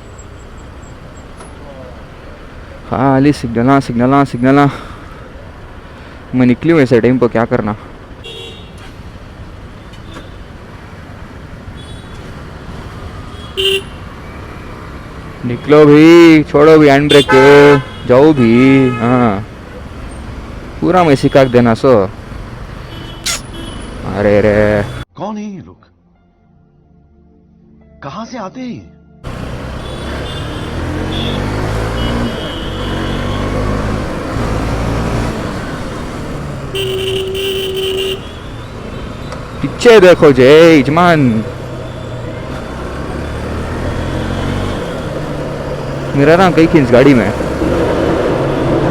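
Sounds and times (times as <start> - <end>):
road traffic rumble: 0.0 - 25.1, 29.2 - 48.9
vehicle horn toot: 8.2 - 8.9, 13.2 - 14.0, 17.1 - 19.4, 29.7 - 33.9, 36.7 - 39.3
motorcycle engine accelerating: 29.3 - 36.7, 41.2 - 48.9.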